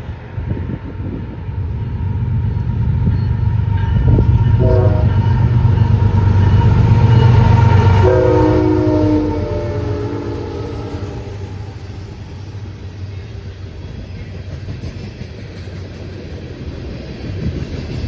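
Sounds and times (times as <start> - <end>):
locomotive rumbling: 0.0 - 18.0
multi-note train horn: 3.9 - 12.7.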